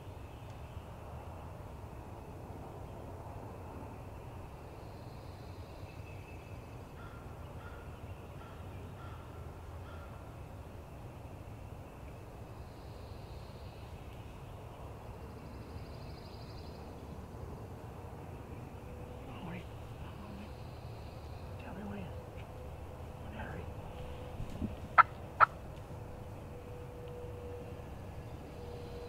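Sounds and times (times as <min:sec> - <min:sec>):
steady low rumble: 0:13.8 - 0:29.0
wild turkey calling: 0:24.9 - 0:25.6.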